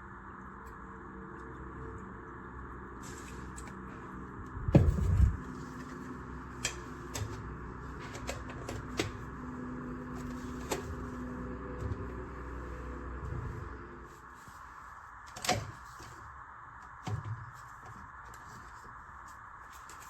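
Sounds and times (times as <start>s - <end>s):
steady background hum: 0.0s - 20.0s
heavy knocking thud: 4.7s - 5.4s.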